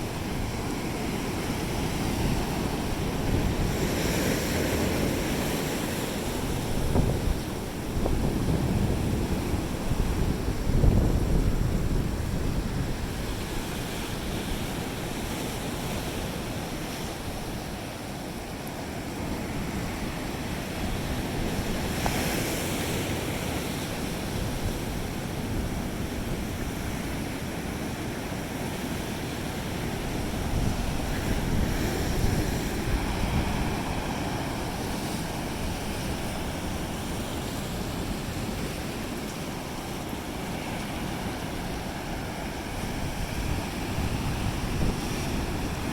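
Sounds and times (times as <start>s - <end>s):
wind buffeting microphone: 0.0s - 17.8s, 29.4s - 45.9s
ocean waves breaking on beach: 0.0s - 45.9s.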